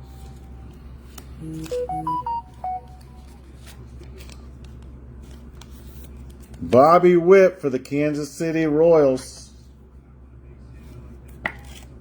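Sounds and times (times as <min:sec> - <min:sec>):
electronic notification jingle: 0:01.4 - 0:03.4.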